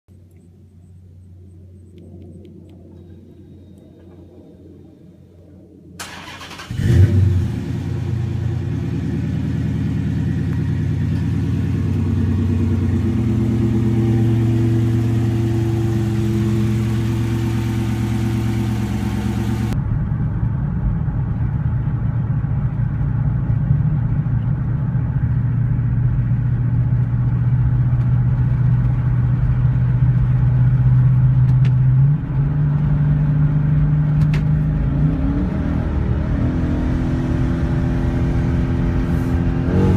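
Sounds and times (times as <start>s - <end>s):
car engine starting and idling: 5.9s - 39.8s
engine revving: 6.0s - 19.8s, 34.7s - 39.9s.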